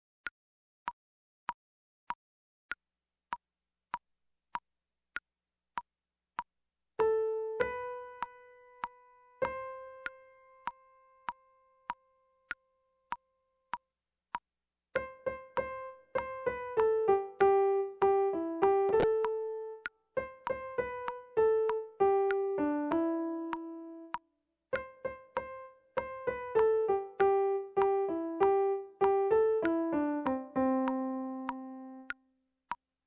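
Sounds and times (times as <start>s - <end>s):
piano melody: 7.0s - 12.3s, 15.0s - 32.2s
metronome clicking: 7.0s - 14.4s, 15.0s - 32.8s.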